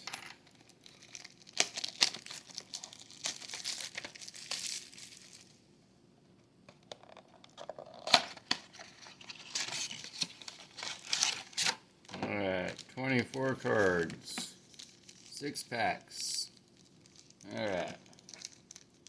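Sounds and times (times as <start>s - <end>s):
packaging crinkling and tearing: 0.4s - 5.6s, 7.2s - 11.8s, 12.5s - 15.4s, 16.5s - 19.0s.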